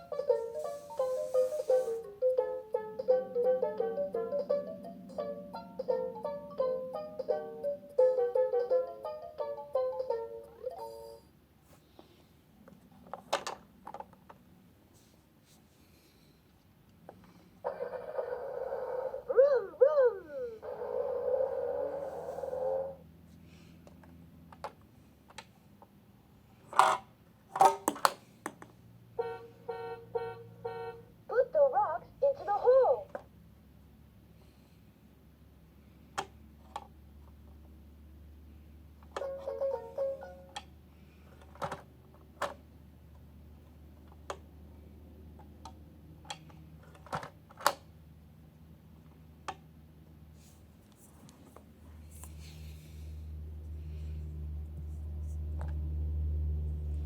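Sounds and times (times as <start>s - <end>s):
plastic toy parts clicking: 26.7s - 27.0s, 27.6s - 28.6s.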